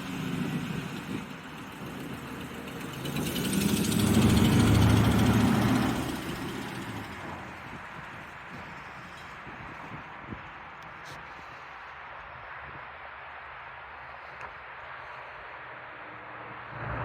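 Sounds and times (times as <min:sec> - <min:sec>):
truck engine running: 0:00.0 - 0:10.5.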